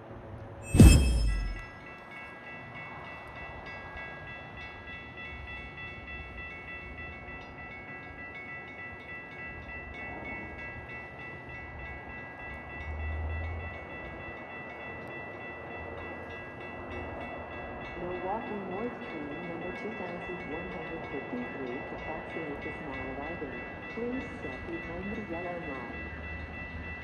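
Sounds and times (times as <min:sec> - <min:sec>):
train low rumble: 0:00.0 - 0:27.0
train metallic squeal: 0:00.6 - 0:01.7.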